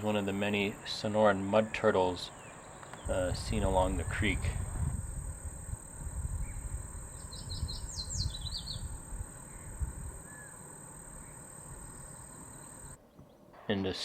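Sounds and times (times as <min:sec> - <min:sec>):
bird chirping: 0:00.0 - 0:04.9, 0:05.7 - 0:13.8
wind gusting on microphone: 0:02.6 - 0:12.2.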